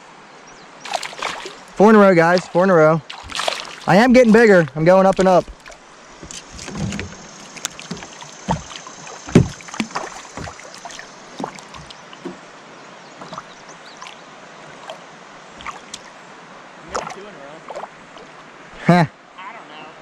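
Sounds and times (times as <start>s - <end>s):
low thump: 6.2s - 7.3s, 9.3s - 10.6s.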